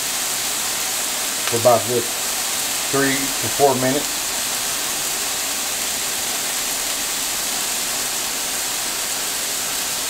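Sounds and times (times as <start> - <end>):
patties sizzling on a griddle: 0.0 - 10.0.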